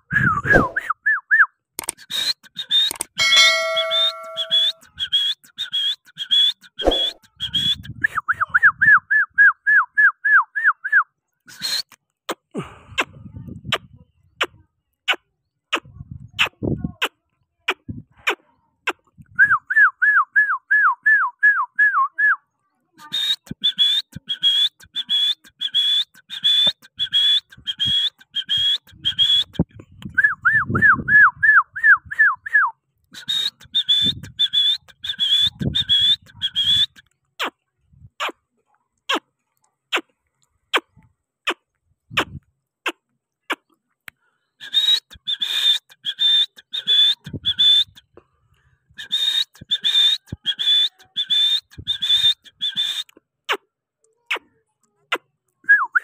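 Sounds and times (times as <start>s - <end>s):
high-pitched whistled chirps: 2.1s - 7.9s, 49.0s - 53.1s
lower falling chirps: 3.2s - 4.8s.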